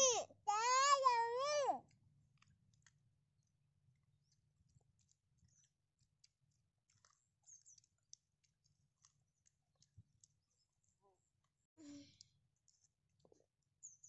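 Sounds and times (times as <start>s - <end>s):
chewing and biting corn: 0.6s - 14.0s.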